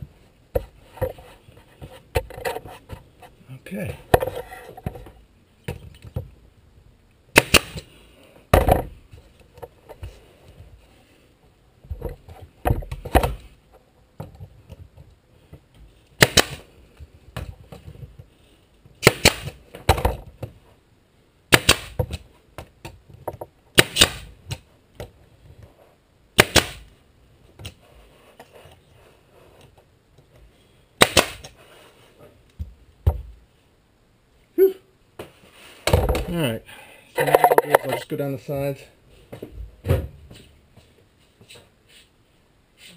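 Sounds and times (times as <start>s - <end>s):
staple gun firing into wood: 7.4s - 7.8s, 16.2s - 16.6s, 21.5s - 22.0s, 23.8s - 24.3s, 26.4s - 26.8s, 31.0s - 31.5s.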